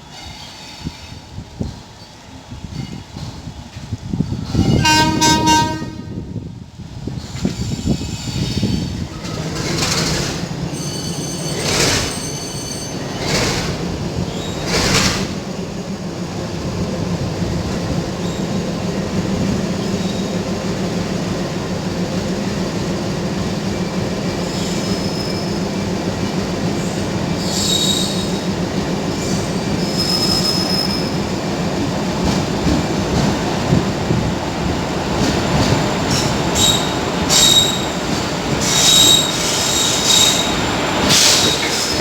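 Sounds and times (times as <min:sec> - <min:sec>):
train wheels rumbling on rails: 0:00.0 - 0:42.0
high-pitched wheel squeals: 0:10.7 - 0:13.5, 0:27.4 - 0:28.4, 0:29.8 - 0:31.2, 0:36.1 - 0:38.0, 0:38.6 - 0:42.0.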